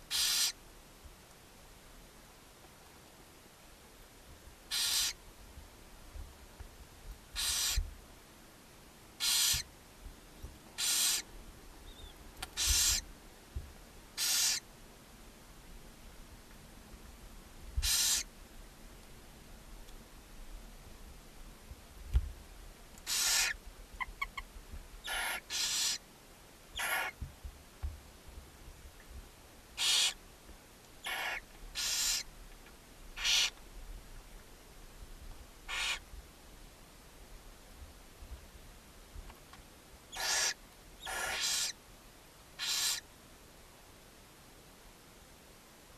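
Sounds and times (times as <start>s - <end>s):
owlets hissing begging calls: 0.0s - 0.6s, 4.7s - 5.2s, 7.3s - 7.8s, 9.2s - 9.7s, 10.8s - 11.3s, 11.9s - 13.1s, 14.2s - 14.6s, 17.8s - 18.3s, 23.0s - 23.6s, 25.0s - 26.0s, 26.8s - 27.2s, 29.8s - 30.2s, 31.0s - 32.3s, 33.2s - 33.6s, 35.7s - 36.0s, 40.1s - 41.8s, 42.6s - 43.0s.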